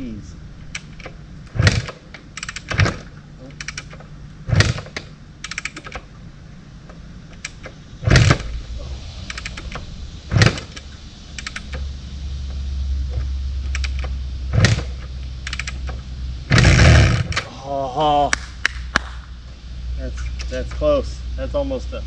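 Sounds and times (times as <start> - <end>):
engine low rumble: 0.0 - 22.0
kickstart mechanism clicking: 0.7 - 6.1, 9.2 - 11.8, 13.6 - 17.5
motorcycle kick-start kicks: 0.8 - 6.1, 7.3 - 8.5, 13.2 - 17.5.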